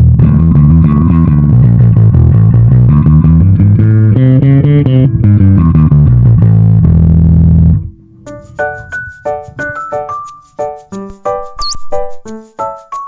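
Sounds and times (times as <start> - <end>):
electric bass plucked notes: 0.0 - 8.2.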